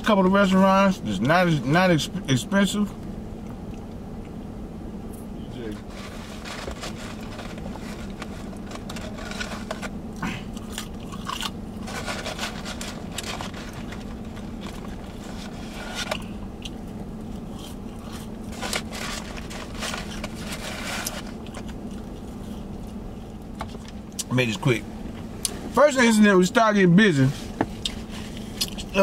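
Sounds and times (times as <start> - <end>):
low vehicle cabin hum: 0.0 - 29.0
cardboard carton crinkling: 5.8 - 10.0, 10.7 - 16.3, 17.6 - 22.4
chewing fries: 5.8 - 24.3, 27.8 - 29.0.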